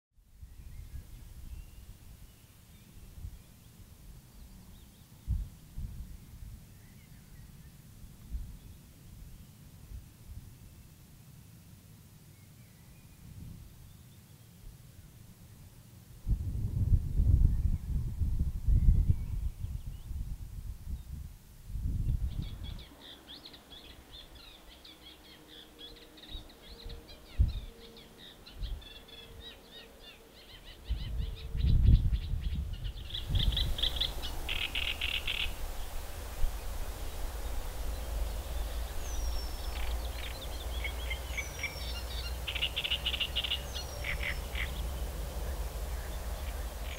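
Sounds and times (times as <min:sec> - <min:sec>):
songbirds trilling: 0:22.3 - 0:46.9
low rumble: 0:33.0 - 0:46.9.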